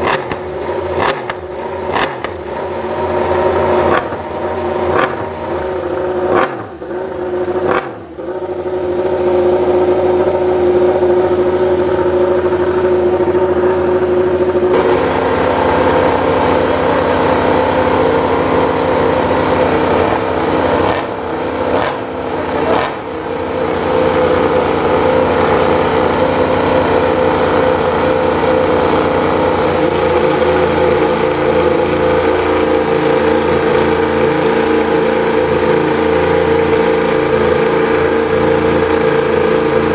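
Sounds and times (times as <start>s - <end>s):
motorcycle throttle blips: 0.0s - 25.2s
motorcycle engine idling: 0.0s - 39.9s.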